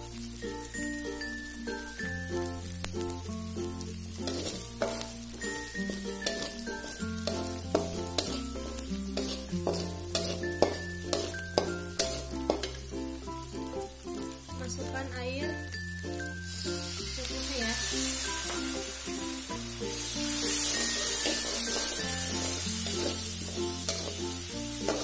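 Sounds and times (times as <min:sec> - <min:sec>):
paste sizzling in hot oil: 0:00.0 - 0:25.0
metal turner scraping a wok: 0:04.2 - 0:05.2, 0:05.8 - 0:12.8, 0:16.8 - 0:25.0.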